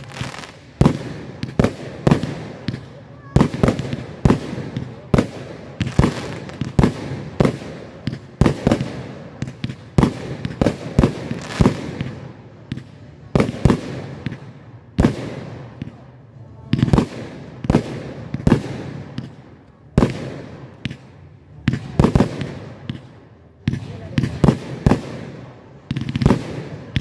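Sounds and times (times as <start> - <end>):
fireworks crackle and hiss: 0.0 - 16.1, 21.7 - 27.0.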